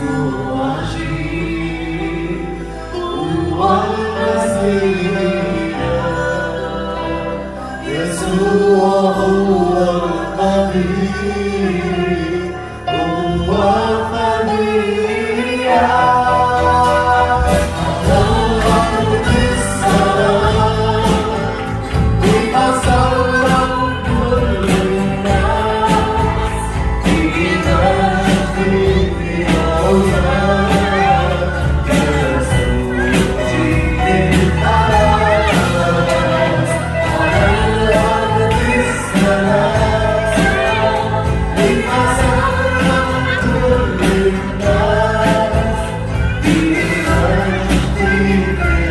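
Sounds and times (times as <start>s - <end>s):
group singing a christian song: 0.0s - 48.9s.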